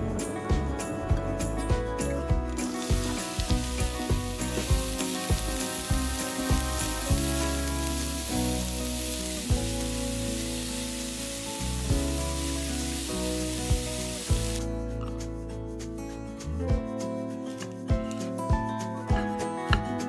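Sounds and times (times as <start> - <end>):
background music with soft beats: 0.0 - 20.0
onions sizzling in hot oil: 2.6 - 14.6.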